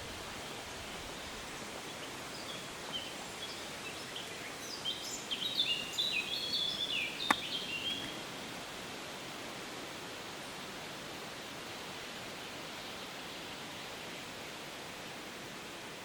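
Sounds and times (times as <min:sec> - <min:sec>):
background hiss: 0:00.0 - 0:16.0
songbird singing: 0:01.2 - 0:08.2.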